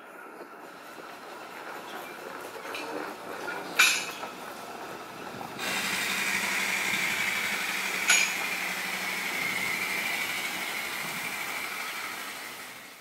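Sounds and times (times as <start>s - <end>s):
train running with high whine: 0.0s - 13.0s.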